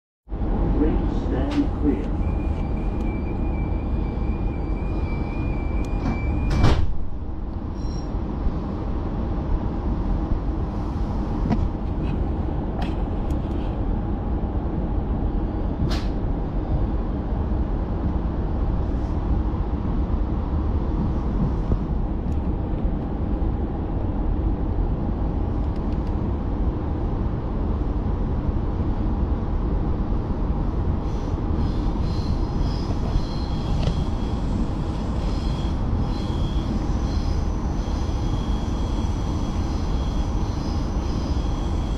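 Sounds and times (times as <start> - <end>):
train rumble: 0.3 - 41.9
door warning tone: 2.0 - 6.8, 32.9 - 37.2, 37.8 - 41.9
train doors thudding shut: 5.6 - 7.3.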